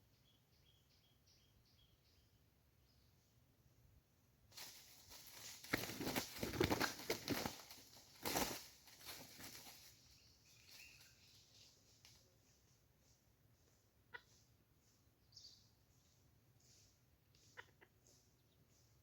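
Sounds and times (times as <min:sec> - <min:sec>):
bird wings flapping: 0:04.5 - 0:11.3.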